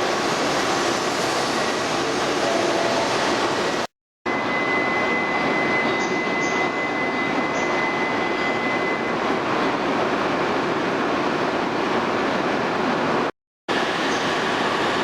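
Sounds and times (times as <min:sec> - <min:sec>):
thin high whine: 0:04.3 - 0:09.4.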